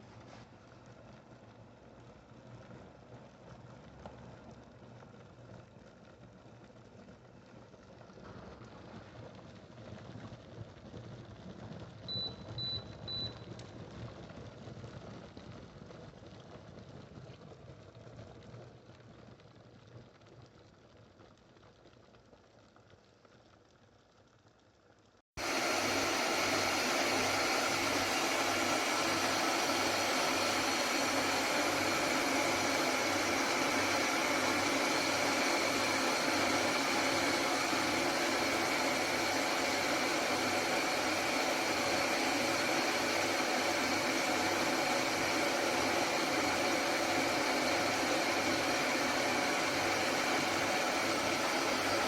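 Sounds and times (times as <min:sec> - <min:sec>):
kettle heating water rumble: 0:00.0 - 0:52.0
kettle high beeps: 0:12.1 - 0:13.5.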